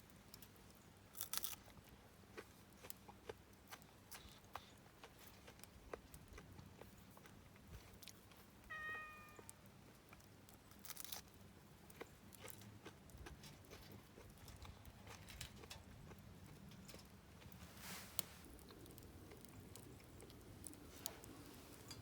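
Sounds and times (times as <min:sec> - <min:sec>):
short squeaky meow-like cry: 0:08.7 - 0:09.6
faint clicks and crackles: 0:09.3 - 0:22.0.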